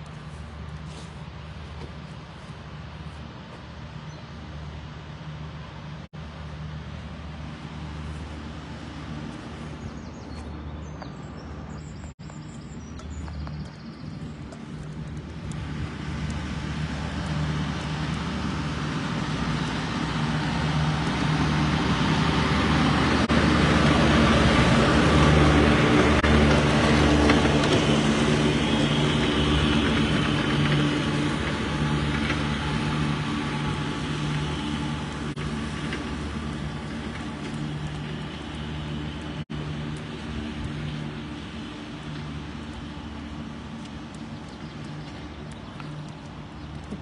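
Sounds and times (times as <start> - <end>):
lawn mower engine: 0.0 - 11.4, 12.3 - 47.0.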